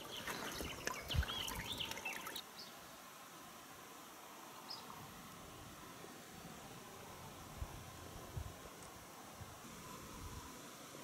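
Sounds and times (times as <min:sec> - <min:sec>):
small birds chirping: 0:00.0 - 0:02.8
faint steady hiss: 0:00.0 - 0:11.0.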